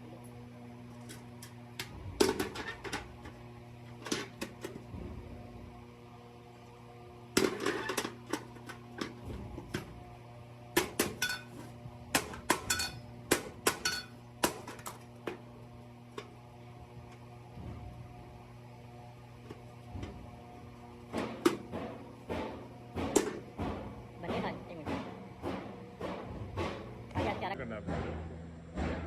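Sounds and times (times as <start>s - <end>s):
steady low hum: 0.0s - 29.0s
metal buckets clanking: 10.8s - 13.1s, 19.4s - 29.0s.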